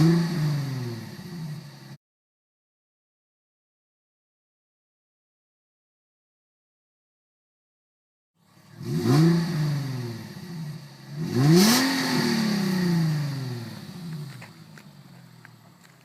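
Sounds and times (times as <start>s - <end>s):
car engine revving: 0.0s - 2.0s, 8.4s - 16.0s.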